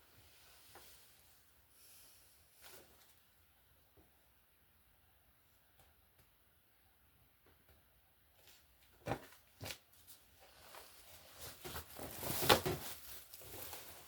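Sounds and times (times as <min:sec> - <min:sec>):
rustling: 0:08.4 - 0:14.0.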